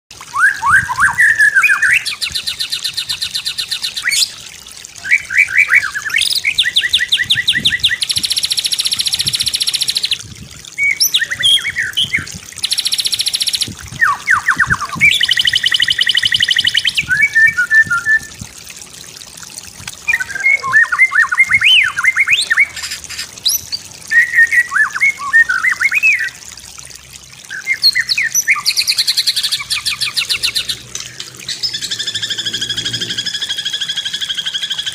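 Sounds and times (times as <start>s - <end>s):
slurred whistled bird phrases: 0.3s - 4.4s, 5.0s - 10.2s, 10.8s - 18.4s, 20.0s - 26.4s, 27.5s - 30.8s
fast rattling bird trills: 10.8s - 17.2s.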